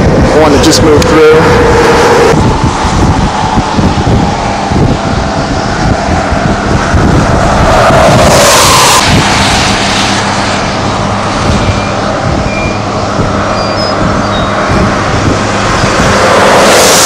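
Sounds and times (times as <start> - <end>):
car engine hum: 0.0 - 17.0
car road and wind noise: 0.0 - 17.0.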